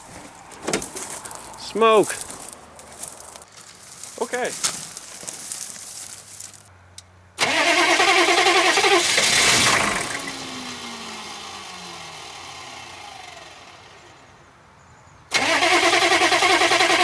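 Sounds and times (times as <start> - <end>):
diesel engine starter cranking: 7.4 - 13.7, 15.3 - 17.0
engine spinning down whine: 9.0 - 14.2.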